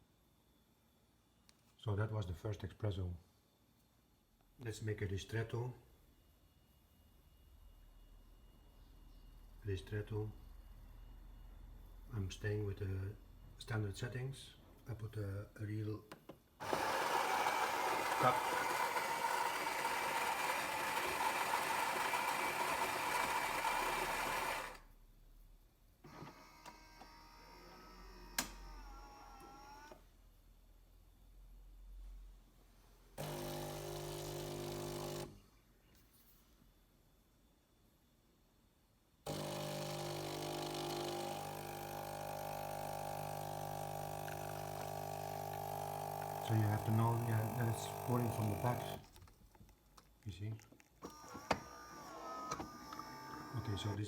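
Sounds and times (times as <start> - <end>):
coffee grinder grinding beans: 16.6 - 24.8, 33.2 - 35.4, 39.3 - 49.3
espresso machine humming: 16.6 - 24.8, 33.2 - 35.3, 39.3 - 49.1.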